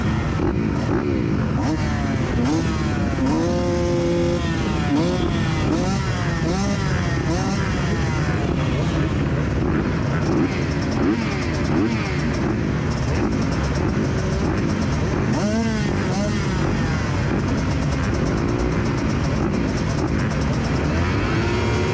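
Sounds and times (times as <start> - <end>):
motocross bike engines revving: 0.0 - 21.9.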